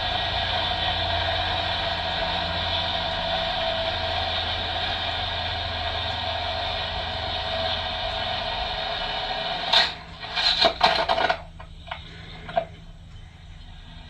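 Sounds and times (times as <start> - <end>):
motorcycle engine running: 0.0 - 12.7
crash impact and clatter: 9.7 - 11.7.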